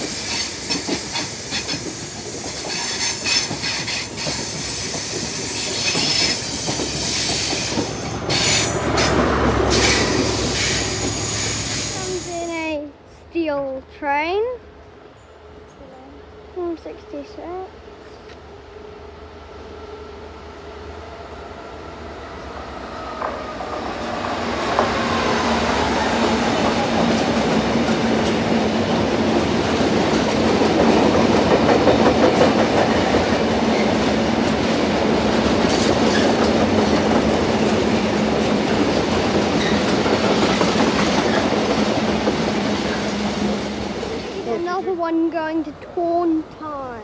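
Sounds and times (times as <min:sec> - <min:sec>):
wheels clicking over rail joints: 0:00.0 - 0:12.2
freight train passing: 0:00.0 - 0:47.0.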